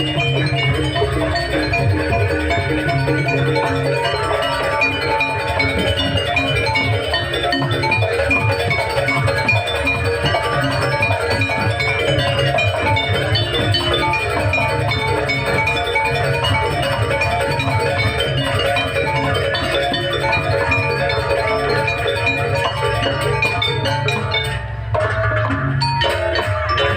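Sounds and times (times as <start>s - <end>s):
continuous drumming: 0.0s - 26.9s
metallophones and gongs ringing: 0.0s - 26.9s.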